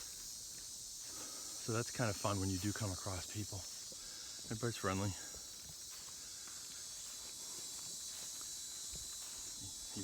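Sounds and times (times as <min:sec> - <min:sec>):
faint footsteps on trail: 0:00.0 - 0:10.0
insects trilling: 0:00.0 - 0:10.0.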